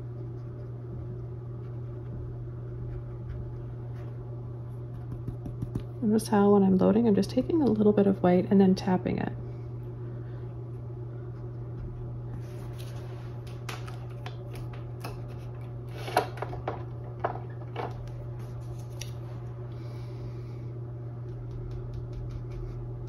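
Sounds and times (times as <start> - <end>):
steady low hum: 0.0 - 23.0
paintbrush taps and scrapes: 5.0 - 5.9.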